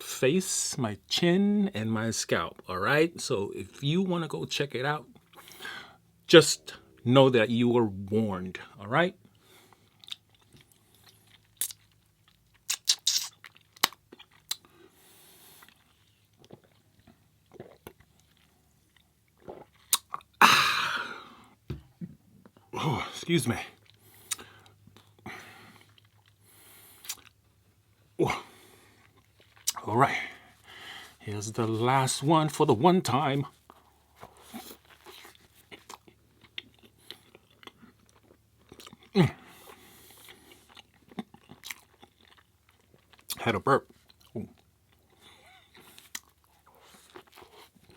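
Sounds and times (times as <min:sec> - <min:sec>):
wet chewing: 0:09.7 - 0:20.4, 0:33.6 - 0:43.4
person burping: 0:20.4 - 0:21.4, 0:22.0 - 0:23.7, 0:28.2 - 0:28.6, 0:39.1 - 0:39.5.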